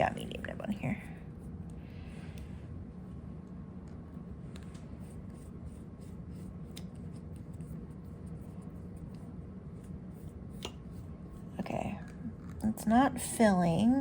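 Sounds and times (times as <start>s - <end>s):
steady low hum: 0.0s - 14.0s
fountain pen clicks and rubbing: 4.6s - 7.8s.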